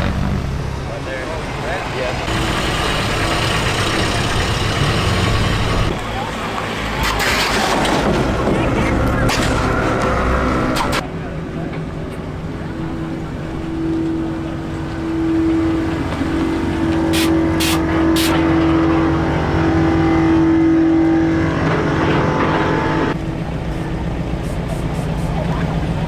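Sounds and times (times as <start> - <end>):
vehicle engines running: 0.0 - 26.0.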